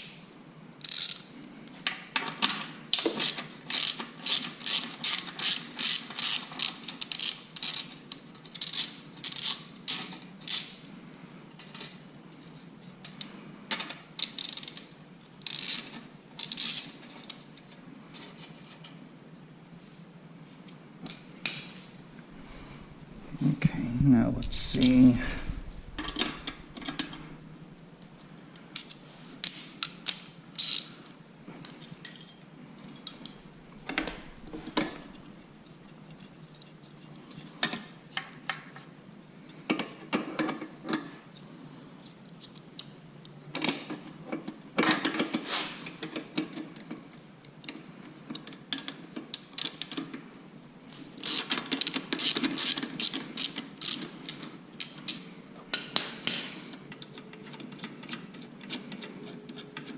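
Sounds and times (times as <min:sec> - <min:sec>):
metallic clicks of hand tools: 0:28.8 - 0:30.9, 0:51.2 - 0:59.9.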